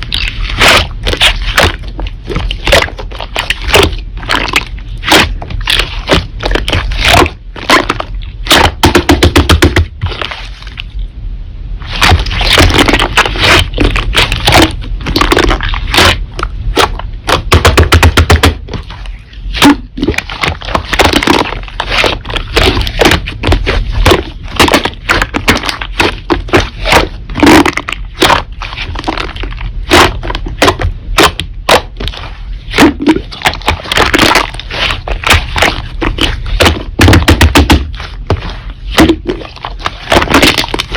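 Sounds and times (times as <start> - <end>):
slime squeezed crackling and popping: 0.0 - 11.0, 11.8 - 40.9.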